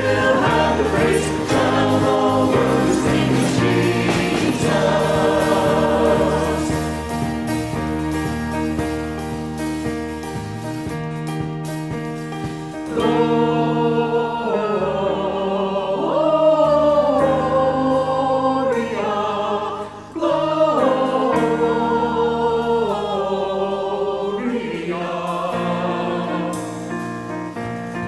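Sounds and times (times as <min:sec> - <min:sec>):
choir singing held notes: 0:00.0 - 0:07.5, 0:12.8 - 0:27.6
musical accompaniment: 0:00.0 - 0:28.0.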